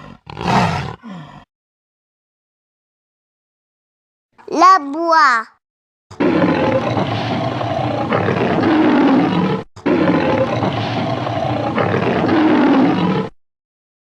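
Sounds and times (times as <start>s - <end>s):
lioness roaring: 0.0s - 1.4s, 6.1s - 13.4s.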